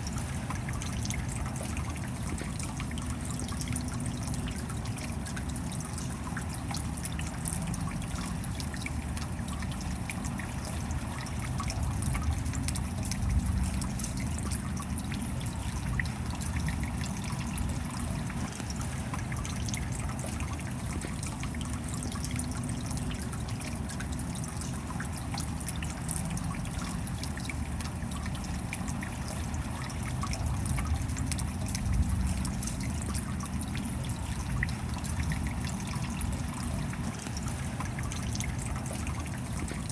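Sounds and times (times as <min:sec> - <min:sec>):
rain drops pattering: 0:00.0 - 0:39.9
water trickling and dripping: 0:00.0 - 0:39.9.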